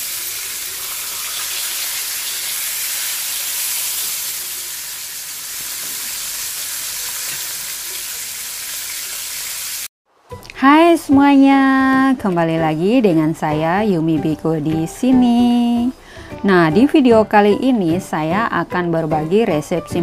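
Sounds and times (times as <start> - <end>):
fish frying in a pan: 0.0 - 9.9.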